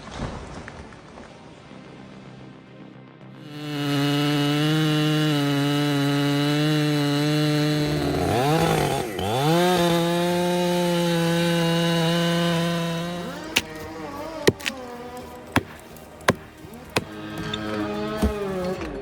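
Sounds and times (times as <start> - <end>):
chainsaw running at high revs: 3.6 - 18.8.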